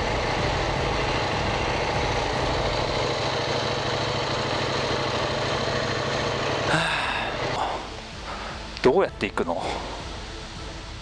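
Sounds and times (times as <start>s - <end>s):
motorcycle engine running at low revs: 0.0s - 8.8s.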